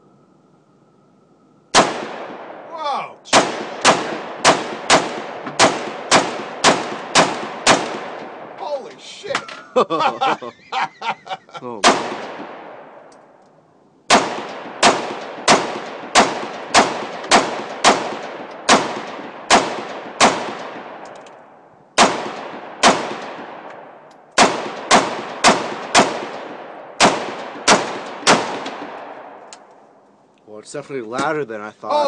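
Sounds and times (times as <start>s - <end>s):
rifle shots with echo: 1.7s - 2.7s, 3.3s - 8.6s, 11.8s - 13.1s, 14.1s - 29.6s.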